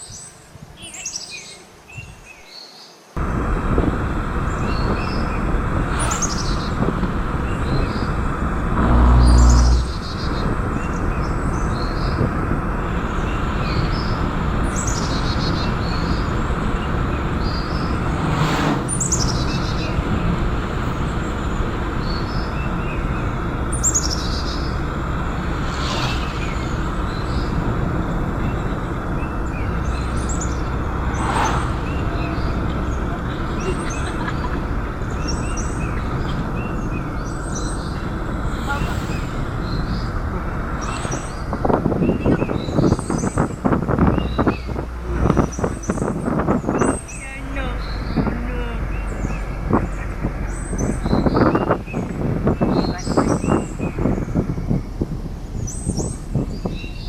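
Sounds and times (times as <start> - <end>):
loud low droning tone: 3.2 - 14.7, 15.8 - 43.0
birds calling: 19.0 - 54.9.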